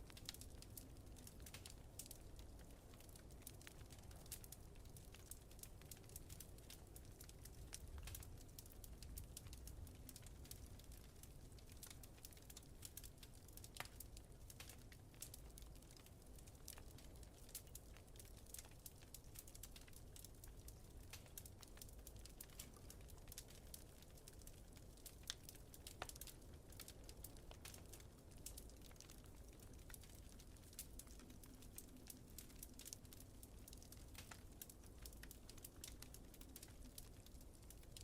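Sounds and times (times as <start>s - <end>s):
faint wood fire crackling: 0.0s - 38.0s.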